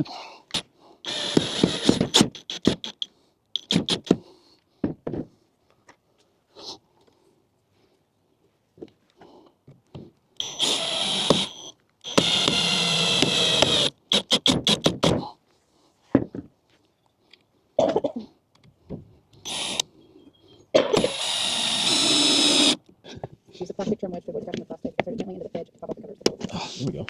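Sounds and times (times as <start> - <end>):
drill trigger blips: 0.5 - 4.2, 10.4 - 15.2, 19.4 - 19.9, 20.8 - 22.8
power drill running: 0.5 - 4.2, 10.4 - 15.2, 19.4 - 19.8, 20.9 - 22.8.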